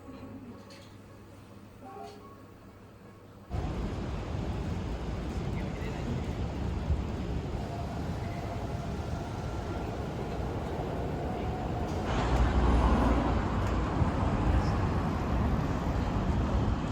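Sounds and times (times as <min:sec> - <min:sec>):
street traffic: 0:03.5 - 0:16.9.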